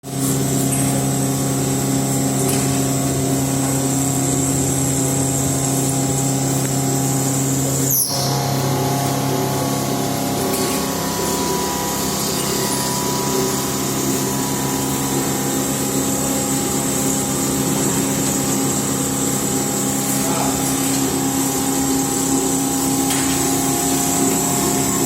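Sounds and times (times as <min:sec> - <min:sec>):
milling machine whining hum: 0:00.0 - 0:25.0.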